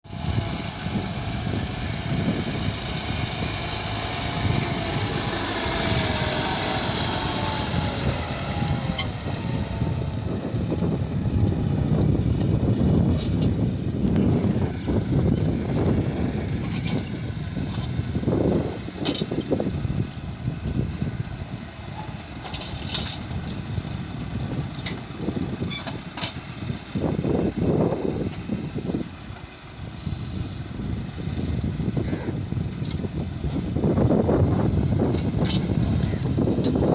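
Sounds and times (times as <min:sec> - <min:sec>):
tractor engine rumbling: 0:00.0 - 0:36.9.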